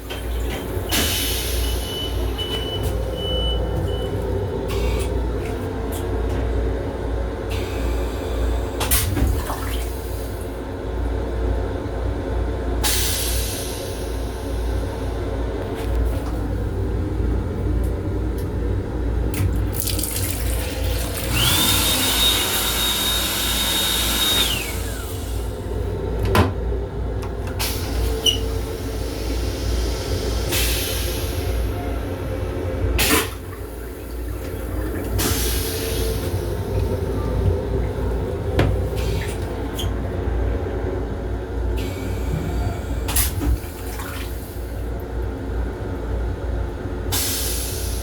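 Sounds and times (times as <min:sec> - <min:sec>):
railcar low rumble: 0:00.0 - 0:48.0
water running with whine: 0:18.7 - 0:40.7.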